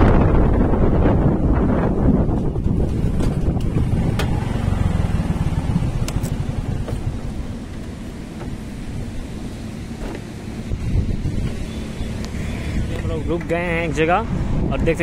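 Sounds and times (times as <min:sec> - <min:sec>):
motorcycle engine running: 0:00.0 - 0:13.8
wind rush on microphone: 0:00.0 - 0:15.0.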